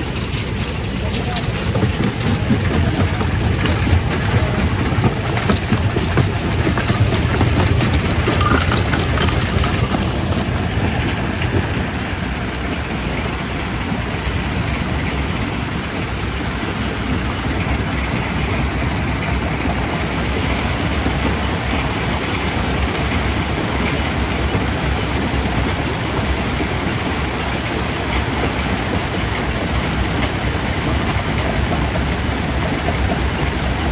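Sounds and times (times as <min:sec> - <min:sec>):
rock crusher rumbling: 0:00.0 - 0:14.0
rock clattering and cracking: 0:01.8 - 0:10.8.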